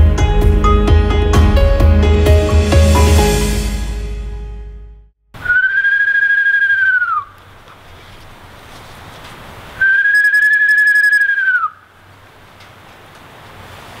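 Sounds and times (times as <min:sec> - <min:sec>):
long whistled notes: 0:05.4 - 0:07.4, 0:09.8 - 0:11.8.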